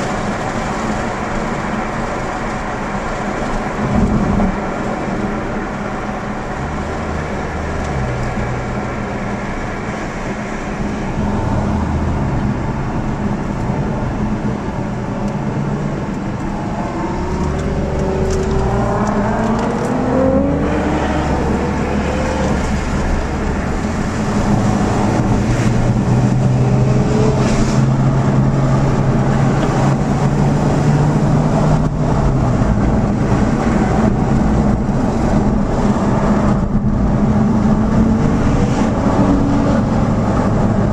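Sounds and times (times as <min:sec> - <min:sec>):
car engines running: 0:00.0 - 0:40.9
loud engine drone: 0:00.0 - 0:40.9
engine revving up: 0:16.6 - 0:32.1.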